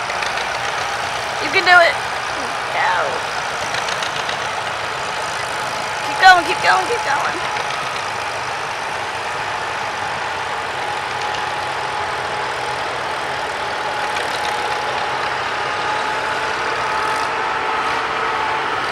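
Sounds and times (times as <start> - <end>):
thin steady whine: 0.0 - 11.2
tractor engine running: 0.0 - 14.7.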